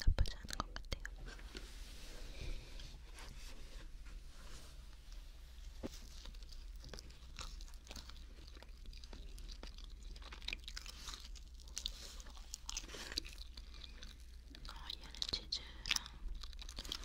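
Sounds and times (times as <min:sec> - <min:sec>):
close-up chewing mouth sounds: 0:00.0 - 0:01.3, 0:05.9 - 0:17.0.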